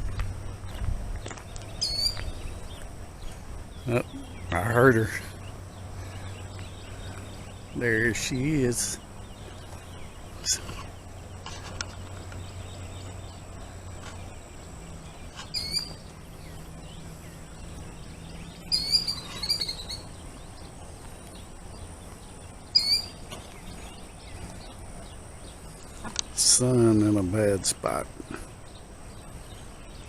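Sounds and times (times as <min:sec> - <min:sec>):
killdeer alarm calls: 0:01.8 - 0:11.6, 0:12.4 - 0:26.0.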